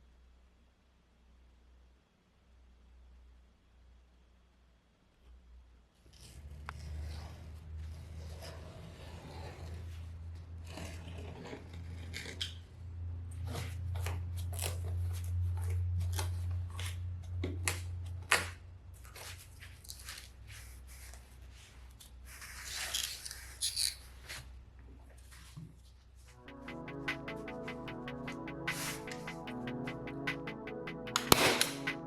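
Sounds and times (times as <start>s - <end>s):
sharp click: 31.1s - 32.0s.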